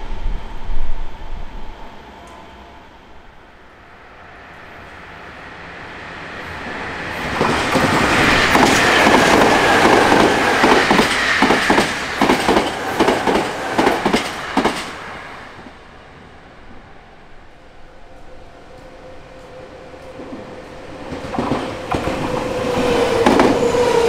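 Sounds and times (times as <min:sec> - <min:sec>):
electric train passing: 0:00.0 - 0:24.0.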